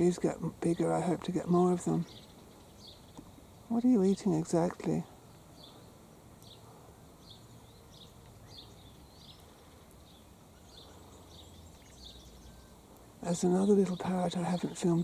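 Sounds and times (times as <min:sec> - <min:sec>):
faint high bird chirps: 0:01.4 - 0:15.0.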